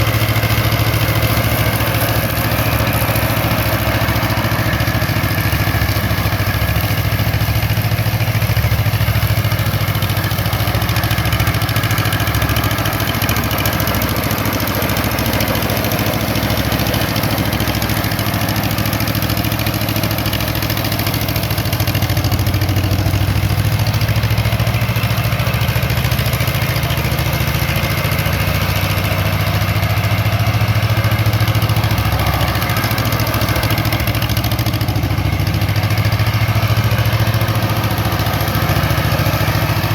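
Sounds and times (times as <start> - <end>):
mower engine running: 0.0 - 39.9.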